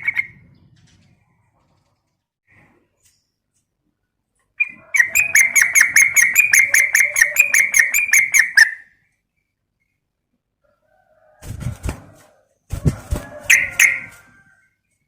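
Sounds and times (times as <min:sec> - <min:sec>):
bird harsh chattering call: 0:05.0 - 0:08.8.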